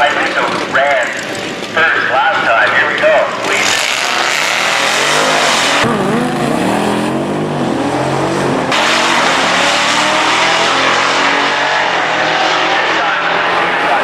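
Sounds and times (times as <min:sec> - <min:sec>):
racing engine revving hard: 0:03.6 - 0:14.0.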